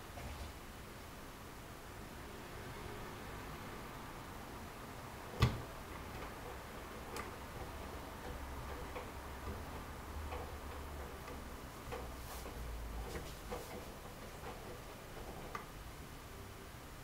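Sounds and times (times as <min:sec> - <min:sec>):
washing machine motor hum: 0:00.0 - 0:17.0
washing machine click: 0:05.3 - 0:15.8.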